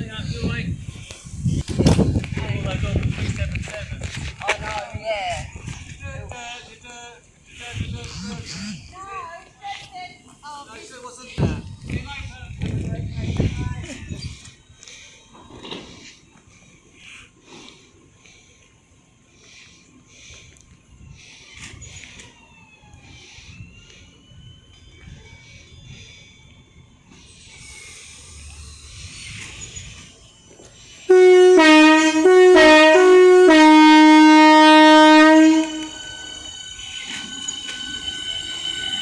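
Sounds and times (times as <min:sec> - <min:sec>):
high ringing tones of approaching train: 0:22.4 - 0:39.0
train two-tone horn blasts: 0:31.1 - 0:36.6.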